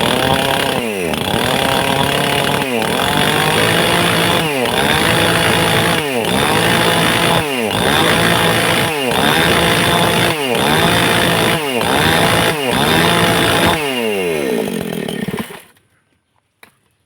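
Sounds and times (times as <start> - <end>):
chainsaw cutting into stone: 0.0 - 15.8.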